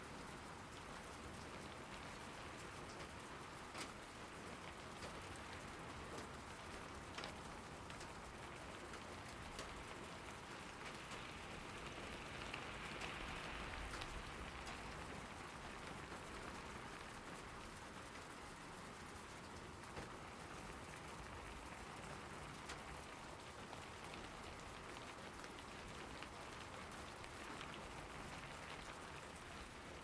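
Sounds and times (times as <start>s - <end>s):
steady rain falling: 0.0s - 30.0s
raindrops ticking: 1.8s - 30.0s.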